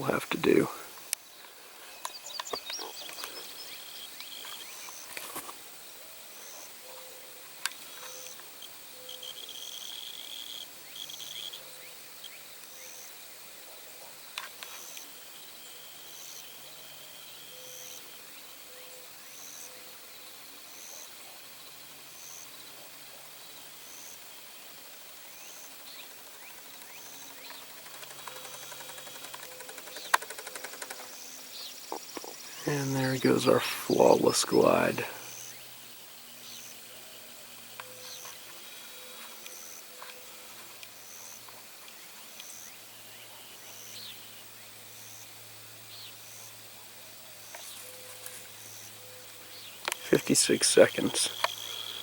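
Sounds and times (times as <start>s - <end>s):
insect chirping rhythmically: 0.0s - 5.2s, 7.4s - 13.2s, 25.3s - 36.9s, 48.6s - 52.0s
birds chirping: 0.0s - 5.5s, 25.3s - 40.5s, 47.5s - 52.0s.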